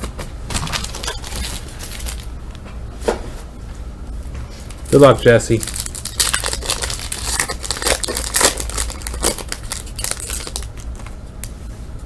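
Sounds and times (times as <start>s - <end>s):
foil wrapper tearing and crinkling: 5.2s - 11.1s.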